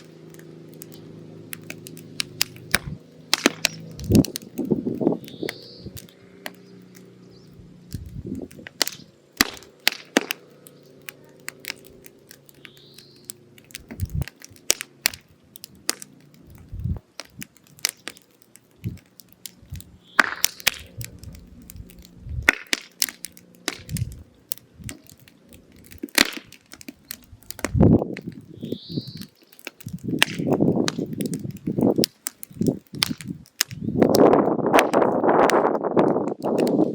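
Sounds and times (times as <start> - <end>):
firewood crackling and popping: 0.0 - 36.9.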